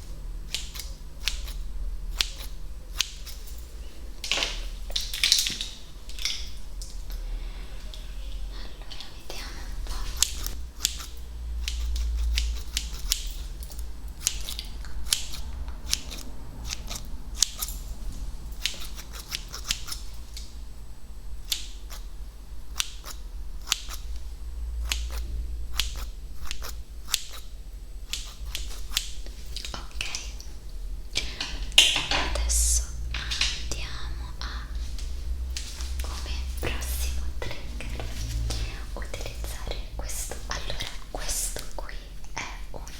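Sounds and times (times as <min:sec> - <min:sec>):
steady low hum: 0:00.0 - 0:42.9
scissors snipping: 0:00.5 - 0:03.6, 0:09.9 - 0:17.8, 0:18.5 - 0:20.5, 0:21.4 - 0:22.1, 0:22.7 - 0:24.2, 0:24.8 - 0:27.5, 0:28.1 - 0:30.5.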